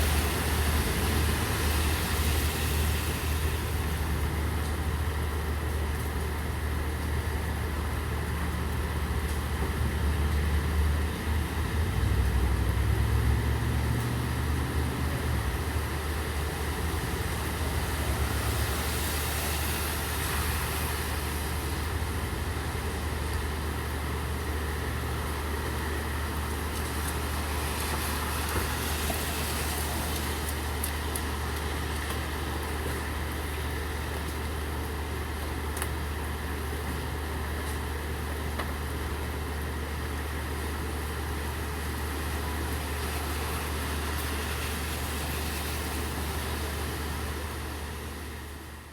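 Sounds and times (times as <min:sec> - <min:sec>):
steady rain hiss: 0:15.2 - 0:48.9.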